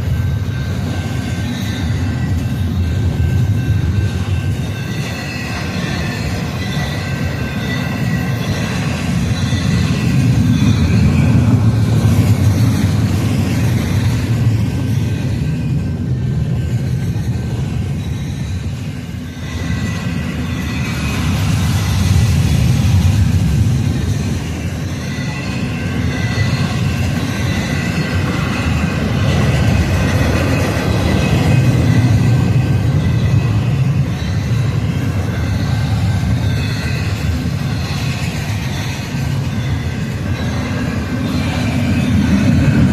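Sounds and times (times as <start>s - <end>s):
freight train wheels rumbling on rail: 0.0s - 42.9s
high-pitched wheel squeal: 0.2s - 14.4s.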